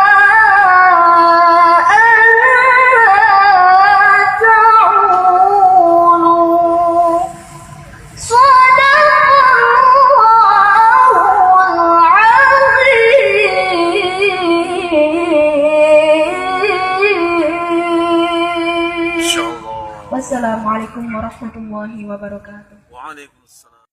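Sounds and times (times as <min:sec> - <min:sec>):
girl reciting melodically: 0:08.2 - 0:21.6.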